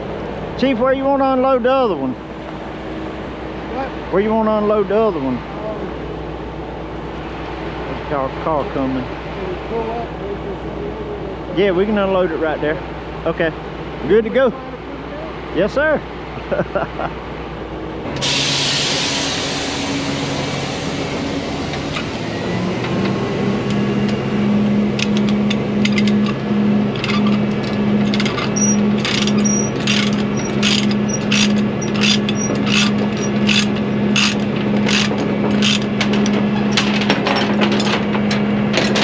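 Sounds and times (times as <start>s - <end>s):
winch mechanism humming: 18.0s - 39.0s
air hiss: 18.2s - 24.1s
regular mechanical clicking: 25.0s - 39.0s.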